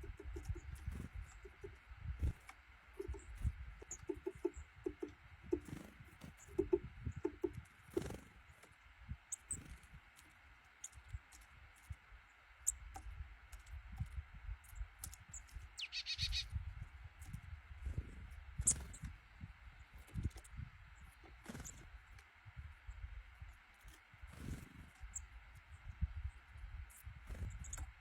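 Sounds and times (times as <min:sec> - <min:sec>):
small birds chirping: 0:00.0 - 0:28.0
harsh bird call: 0:15.8 - 0:16.5.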